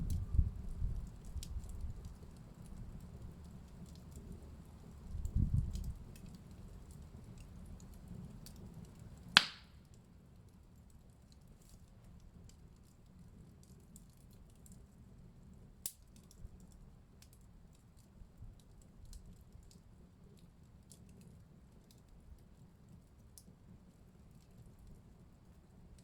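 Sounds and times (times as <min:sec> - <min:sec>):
low rumble of burning: 0:00.0 - 0:26.0
small pops of fire: 0:00.0 - 0:26.0
wood fire crackling: 0:00.0 - 0:26.0
sharp snap of fire: 0:05.2 - 0:06.3, 0:07.4 - 0:10.0, 0:15.8 - 0:16.4.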